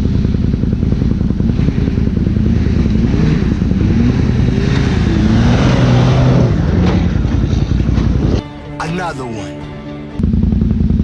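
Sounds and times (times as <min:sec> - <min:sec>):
pickup truck engine revving: 0:00.0 - 0:08.4.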